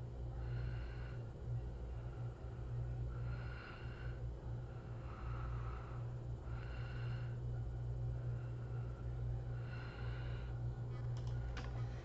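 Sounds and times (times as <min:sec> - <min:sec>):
low electrical hum: 0:00.0 - 0:12.0
person breathing softly: 0:00.3 - 0:12.0.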